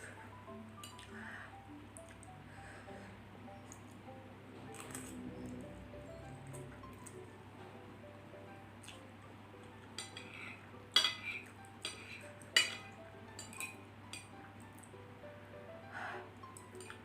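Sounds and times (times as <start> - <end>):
noodles being eaten: 4.7 - 5.6
utensils clinking against dish: 10.0 - 14.3, 16.6 - 17.0.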